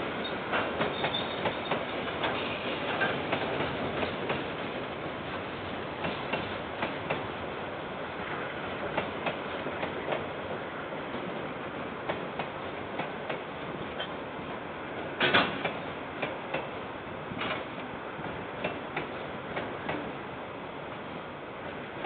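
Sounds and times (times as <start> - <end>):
train wheels clanking over rail joints: 0.2 - 7.3, 15.0 - 20.1.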